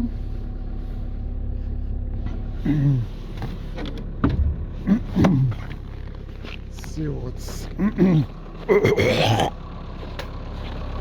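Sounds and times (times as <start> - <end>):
diesel engine running: 0.0 - 11.0
dull thump: 4.2 - 5.6.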